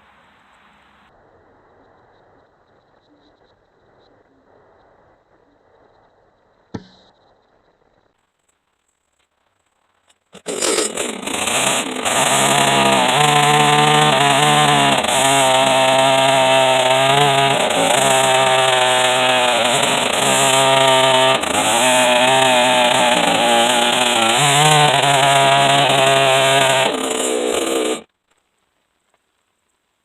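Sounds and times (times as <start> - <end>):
chainsaw cutting through wood: 10.4 - 28.1.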